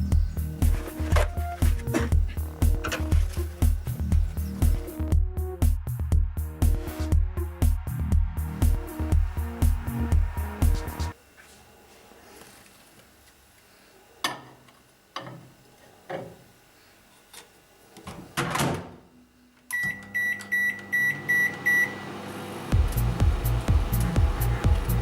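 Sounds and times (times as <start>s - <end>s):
microwave oven beeping: 0.0s - 3.8s, 19.1s - 25.0s
music with steady beat: 0.0s - 11.2s, 22.7s - 25.0s.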